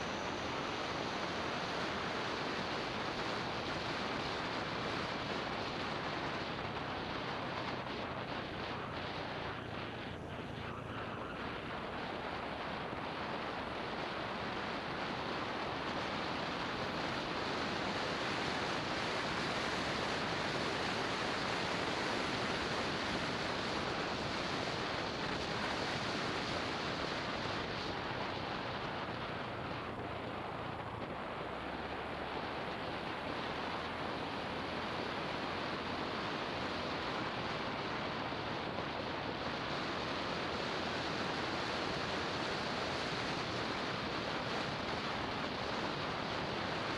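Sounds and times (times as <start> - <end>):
road noise: 0.0 - 46.9
wind rushing over microphone: 0.0 - 46.9.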